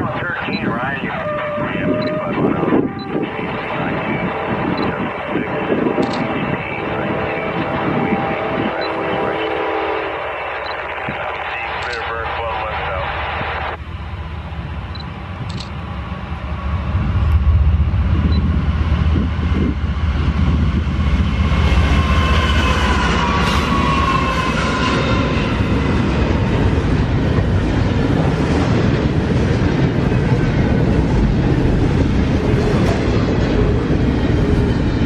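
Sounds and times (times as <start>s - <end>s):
freight train wheels rumbling: 0.0s - 35.0s
high-pitched squealing: 21.9s - 25.7s.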